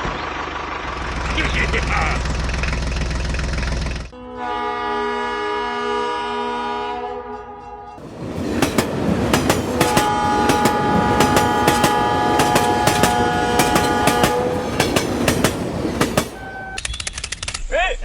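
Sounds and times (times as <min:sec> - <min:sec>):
rumbling vehicle noise: 0:00.0 - 0:04.1, 0:08.0 - 0:17.6
steady horn tone: 0:04.1 - 0:08.0, 0:09.7 - 0:15.0.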